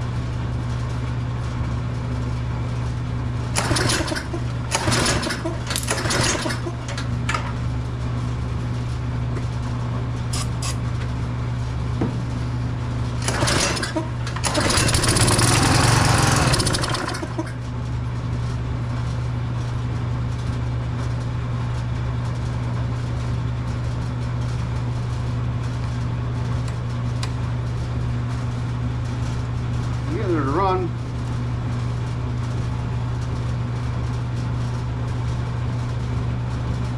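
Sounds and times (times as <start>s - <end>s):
pressure washer engine running: 13.2s - 17.6s.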